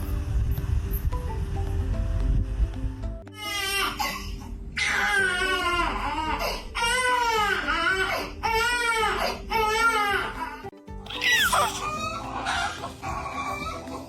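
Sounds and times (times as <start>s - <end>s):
baby crying: 3.3s - 14.0s.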